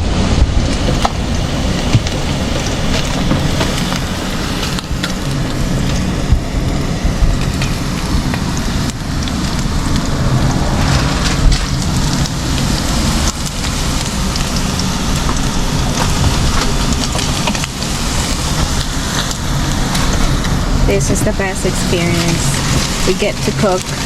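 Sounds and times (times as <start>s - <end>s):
low steady rumble: 0.0s - 24.0s
meat sizzling in a pan: 0.8s - 24.0s.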